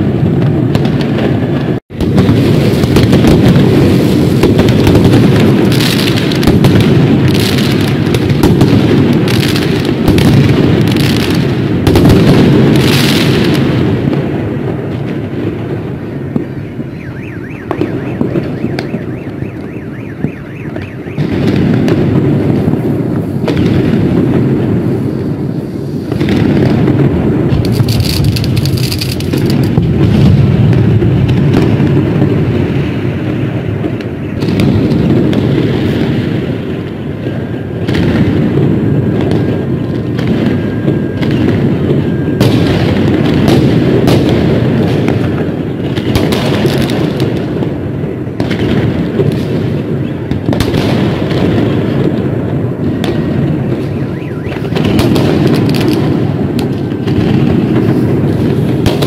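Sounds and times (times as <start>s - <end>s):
fireworks bursts and bangs: 0.0s - 59.0s.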